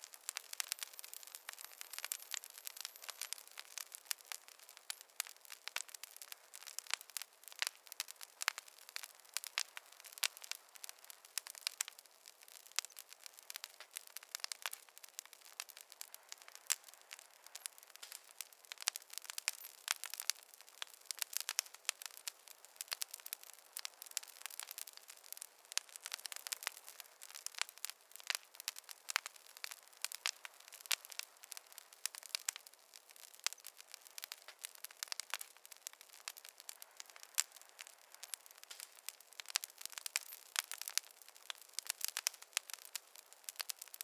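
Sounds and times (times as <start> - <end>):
campfire crackling and popping: 0.0 - 44.0.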